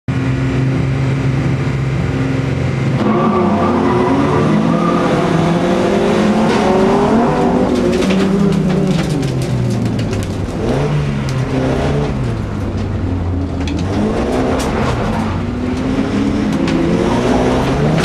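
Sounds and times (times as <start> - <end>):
car engine revving: 0.1 - 18.0
cars clattering on gravel: 6.3 - 18.0.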